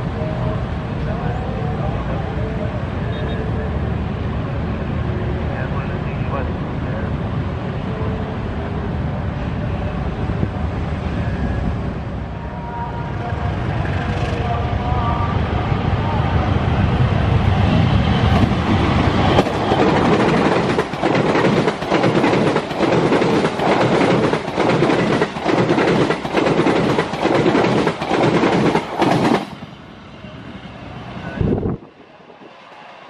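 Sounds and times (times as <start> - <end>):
deep locomotive engine rumble: 0.0 - 32.9
wheels clickety-clack on rail joints: 17.5 - 29.6.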